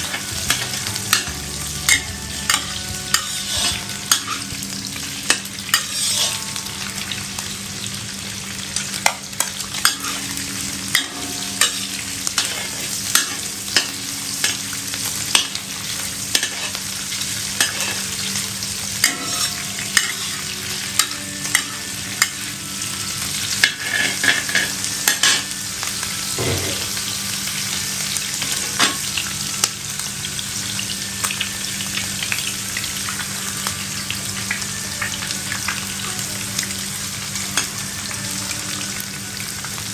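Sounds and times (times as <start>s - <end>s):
food sizzling in a frying pan: 0.0s - 39.9s
spatula scraping a pan: 1.9s - 4.6s, 5.3s - 6.6s, 10.9s - 14.6s, 16.3s - 18.3s, 19.0s - 22.4s, 23.4s - 25.5s.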